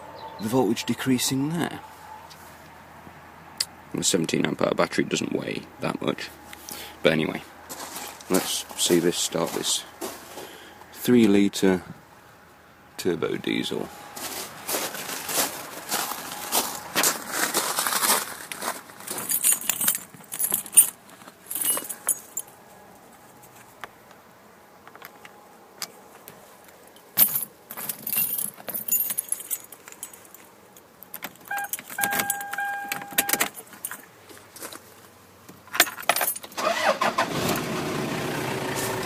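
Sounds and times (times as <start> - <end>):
car keys jangling in ignition: 19.1 - 22.5, 27.2 - 34.1, 35.7 - 37.2
dashboard electronic beep: 31.5 - 33.5
diesel engine cranking and starting: 36.4 - 39.0.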